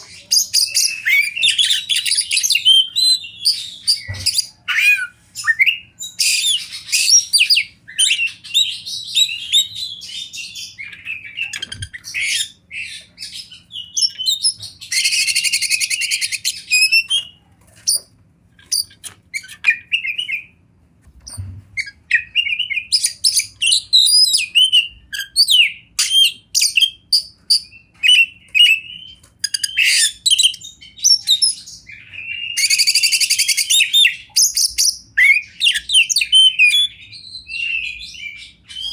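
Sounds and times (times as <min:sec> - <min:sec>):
bird singing whistled phrases: 0:21.8 - 0:38.9.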